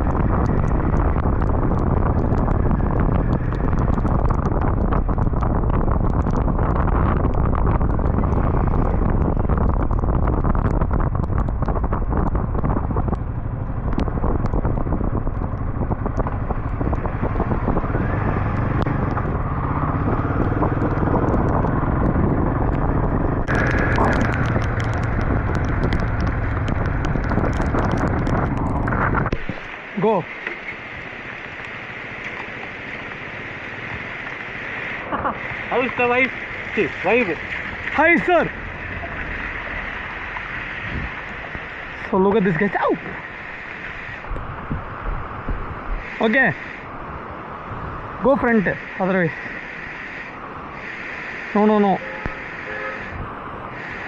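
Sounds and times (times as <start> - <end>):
motorcycle engine hum: 0.0 - 50.8
wind buffeting on microphone: 0.0 - 54.0
loud hiss: 46.0 - 46.9, 48.7 - 53.2, 53.8 - 54.0.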